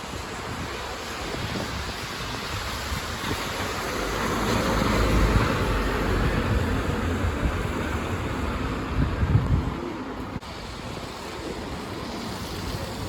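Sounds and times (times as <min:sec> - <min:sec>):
wind buffeting microphone: 0:00.0 - 0:13.0
bus driving past: 0:02.6 - 0:13.0.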